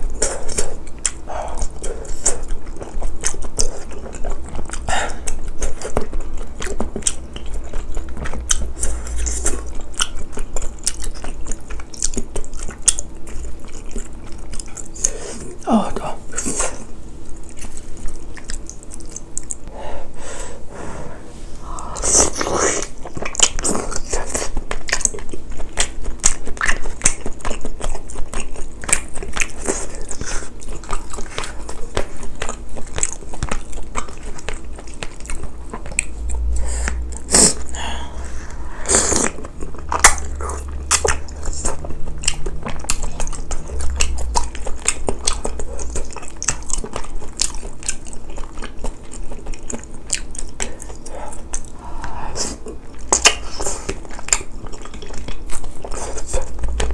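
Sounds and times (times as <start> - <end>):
chewing and biting food: 0.0 - 19.7, 21.5 - 56.9
wet mouth clicks: 34.8 - 47.0, 50.2 - 56.9.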